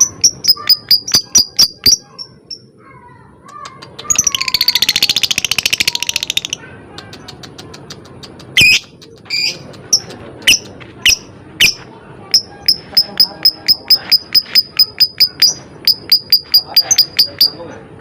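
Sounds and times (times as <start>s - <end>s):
shrill bird chirps: 0.0s - 2.7s
fast even ticking: 12.3s - 17.6s.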